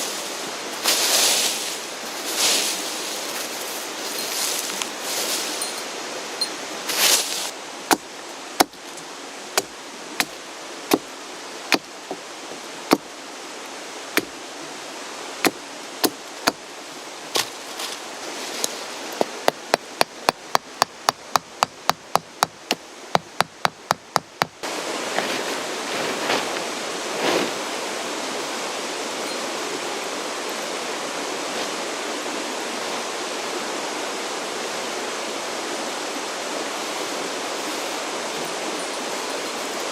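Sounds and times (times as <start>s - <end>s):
mountain stream rushing: 0.0s - 39.9s
sharp hammer-like knocks: 7.9s - 8.8s, 19.4s - 24.6s.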